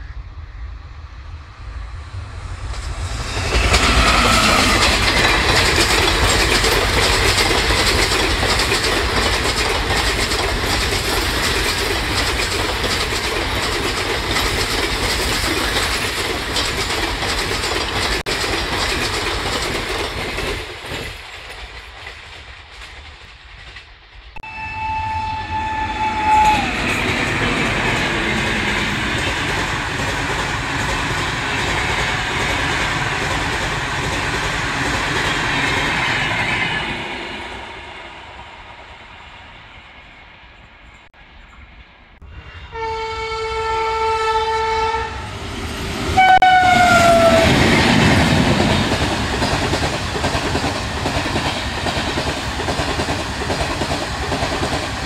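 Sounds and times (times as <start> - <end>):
trains rushing past: 0.0 - 55.0
wheels clattering over rail joints: 3.5 - 23.9
locomotive horn: 24.4 - 27.1, 42.7 - 45.3, 46.2 - 47.6.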